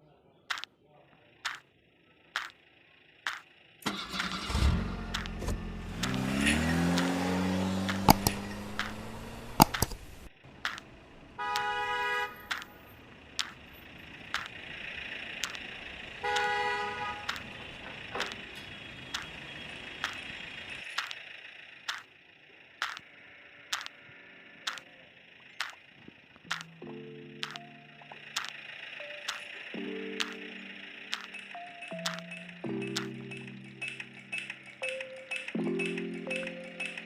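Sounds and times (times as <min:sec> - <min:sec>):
sharp ticking clicks: 0:01.4 - 0:01.7, 0:02.3 - 0:21.2, 0:21.8 - 0:22.2, 0:22.8 - 0:37.0
cartoon truck engine revving: 0:03.2 - 0:11.3, 0:12.4 - 0:23.1
truck horn honking: 0:11.4 - 0:13.0, 0:16.1 - 0:20.4.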